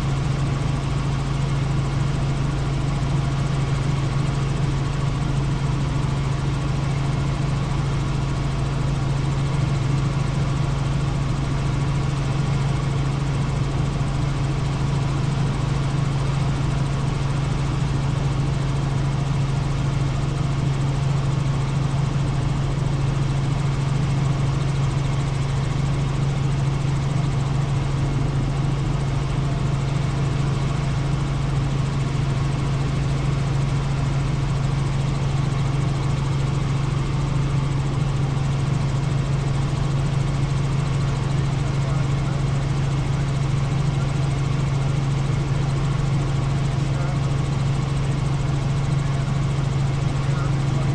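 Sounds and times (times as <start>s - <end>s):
helicopter engine and rotors droning: 0.0s - 50.9s.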